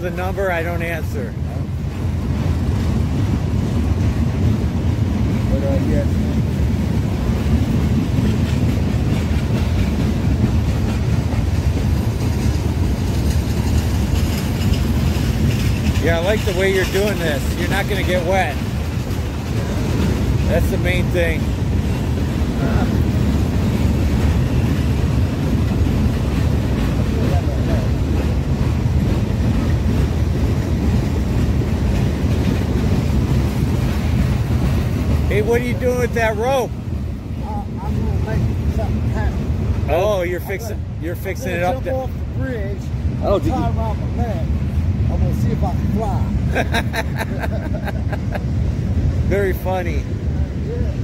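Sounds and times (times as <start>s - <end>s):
train rumbling on track: 0.0s - 51.0s.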